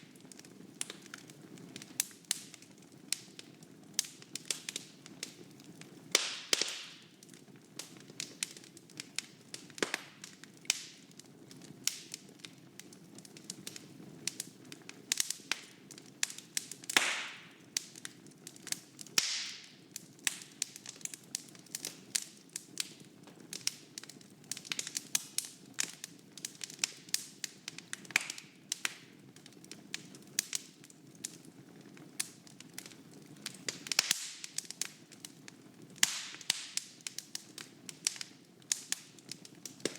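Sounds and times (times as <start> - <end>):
wood fire crackling and popping: 0.0 - 39.9
low rumble of flames: 19.9 - 39.9.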